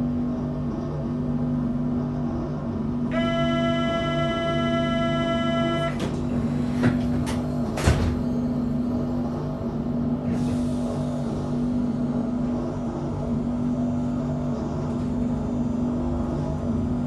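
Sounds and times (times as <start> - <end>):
electric train hum: 0.0 - 17.0
loud buzzing tone: 3.1 - 6.1.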